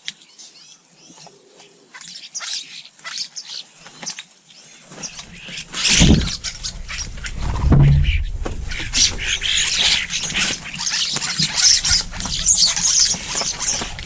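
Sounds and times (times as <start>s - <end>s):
small birds chirping: 0.0s - 14.0s
low rumble with knocks: 5.2s - 14.0s.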